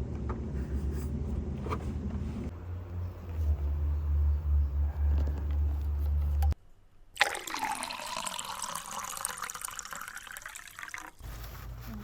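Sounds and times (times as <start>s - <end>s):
liquid pouring: 7.2s - 11.2s.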